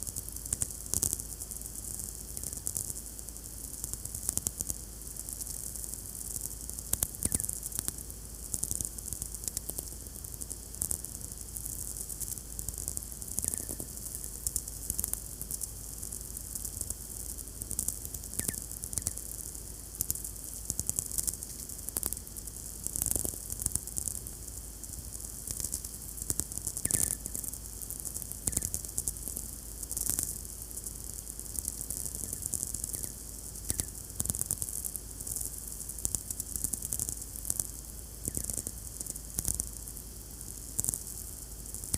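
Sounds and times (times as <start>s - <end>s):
crackling clicks: 6.9s - 7.9s, 12.1s - 15.7s, 17.6s - 19.3s, 25.4s - 27.5s, 28.4s - 29.4s, 30.0s - 30.9s, 31.5s - 34.9s, 36.0s - 39.7s.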